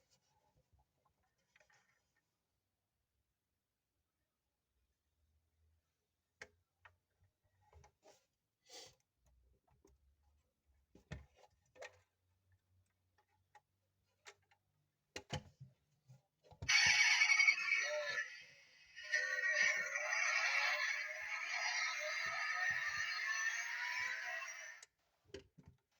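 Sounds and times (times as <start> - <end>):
electronic toy sound effect: 16.7 - 24.8.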